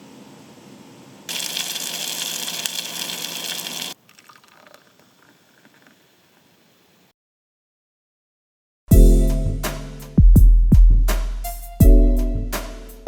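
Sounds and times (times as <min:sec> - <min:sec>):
faint spatters: 0:01.3 - 0:06.0.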